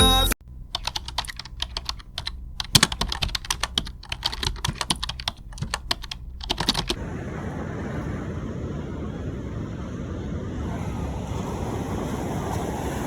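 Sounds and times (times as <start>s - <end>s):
rapid irregular clicking: 0.4s - 7.0s
wind: 0.6s - 13.0s
surf: 7.0s - 13.0s.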